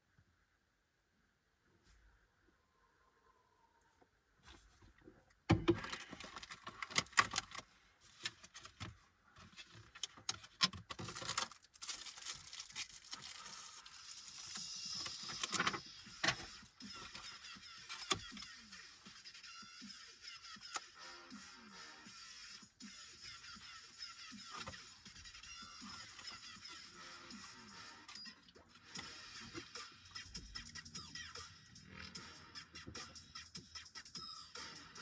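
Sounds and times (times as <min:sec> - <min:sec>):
plastic packaging crinkling: 0:05.8 - 0:08.8, 0:09.4 - 0:15.7.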